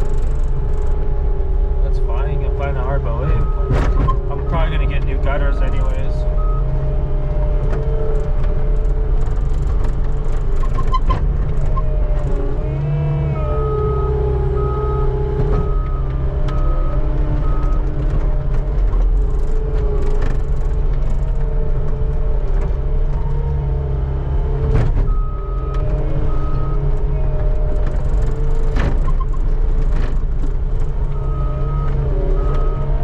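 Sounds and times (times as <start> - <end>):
skid steer engine running: 0.0 - 33.0
backup alarm beeping: 2.5 - 6.7, 13.4 - 17.8.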